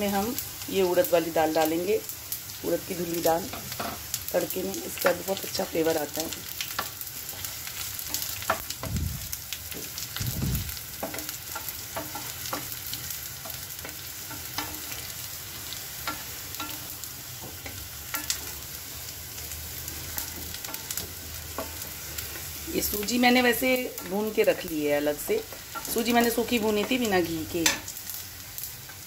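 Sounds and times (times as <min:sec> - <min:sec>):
food sizzling in hot oil: 0:00.0 - 0:29.0
spatula stirring in pan: 0:06.4 - 0:08.9, 0:09.6 - 0:22.6
dull low thumps: 0:08.8 - 0:09.4, 0:10.2 - 0:10.8.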